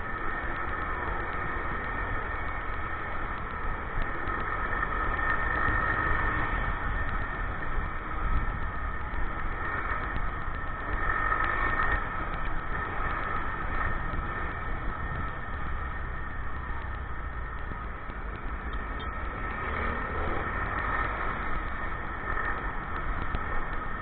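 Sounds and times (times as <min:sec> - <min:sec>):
motorcycle engine droning: 0:00.0 - 0:24.0.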